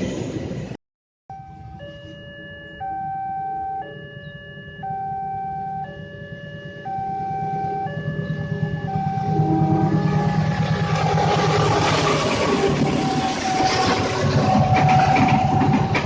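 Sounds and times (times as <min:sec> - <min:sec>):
two-tone electronic alarm: 0:01.3 - 0:16.0
low rumble: 0:06.5 - 0:16.0.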